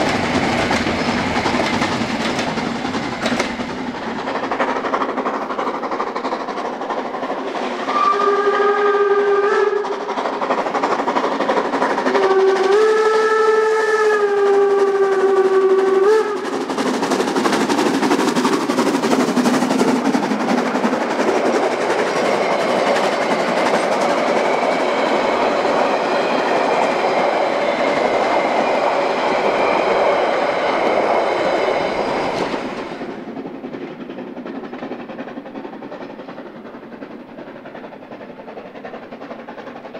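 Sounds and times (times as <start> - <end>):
steam locomotive exhaust beats: 0.0 - 39.9
steam whistle blasts: 7.7 - 9.9, 12.1 - 16.5.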